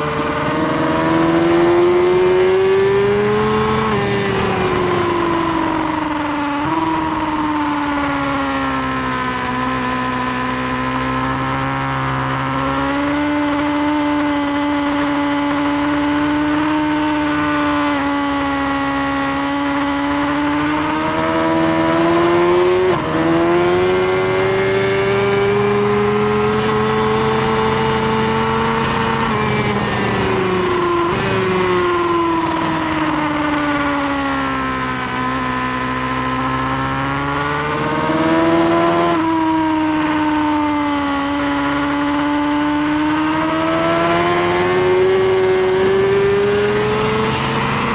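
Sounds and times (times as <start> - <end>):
motorcycle engine running hard: 0.0 - 47.9.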